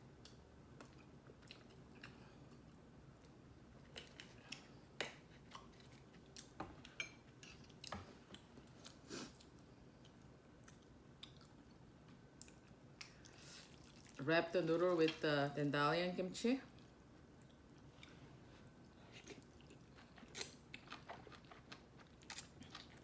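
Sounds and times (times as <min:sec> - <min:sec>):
person chewing: 0:07.6 - 0:11.8, 0:12.4 - 0:14.2, 0:18.9 - 0:23.0.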